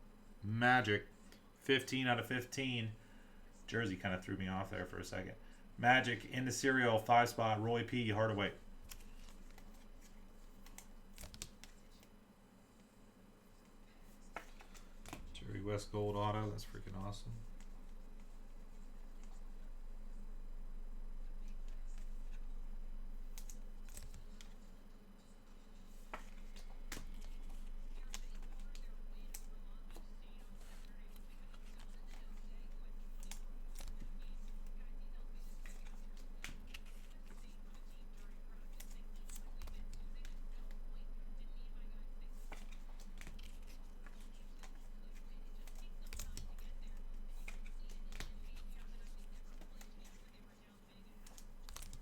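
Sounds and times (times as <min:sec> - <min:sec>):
low steady hum: 0:00.0 - 0:52.0
trading cards clicking and tapping: 0:08.8 - 0:12.1, 0:14.2 - 0:18.4, 0:23.2 - 0:24.8, 0:25.5 - 0:40.9, 0:42.3 - 0:50.2, 0:51.2 - 0:52.0.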